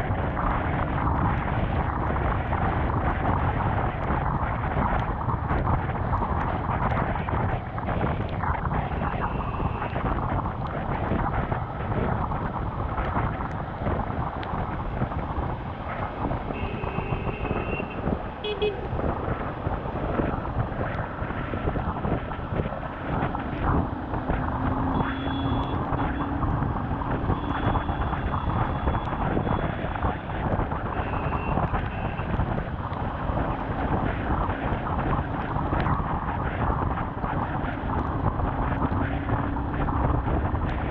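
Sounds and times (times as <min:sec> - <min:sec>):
motorcycle road noise: 0:00.0 - 0:40.9
rushing wind: 0:00.0 - 0:40.9
vehicle horns honking: 0:16.6 - 0:18.9, 0:24.9 - 0:26.3.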